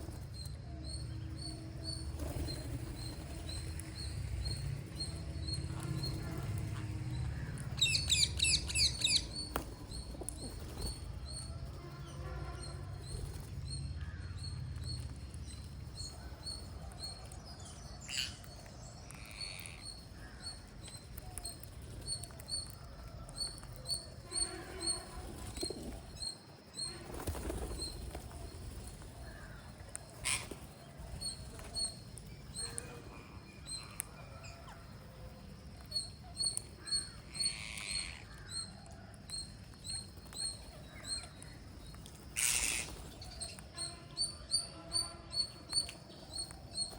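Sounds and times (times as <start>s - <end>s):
parrots chirping: 19.1s - 19.9s, 36.4s - 38.2s, 42.4s - 43.6s.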